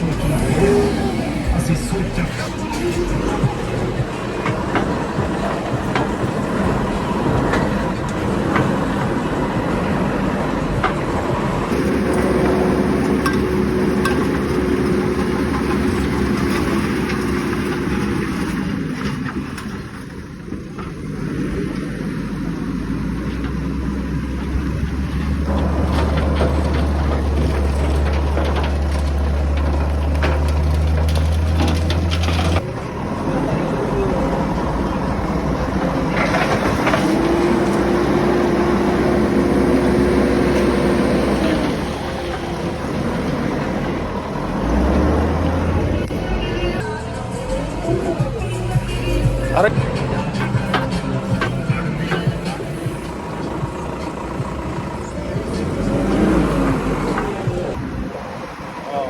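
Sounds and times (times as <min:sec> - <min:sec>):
deep strong hum: 0:00.0 - 0:16.5, 0:42.8 - 0:58.1
diesel machinery engine running: 0:00.0 - 0:59.0.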